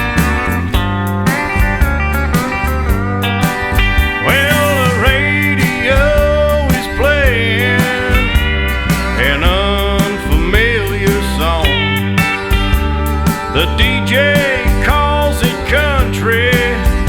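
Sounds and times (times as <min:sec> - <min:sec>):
bass line: 0:00.0 - 0:17.0
drum beat: 0:00.0 - 0:17.0
steel guitar sliding notes: 0:00.0 - 0:17.0.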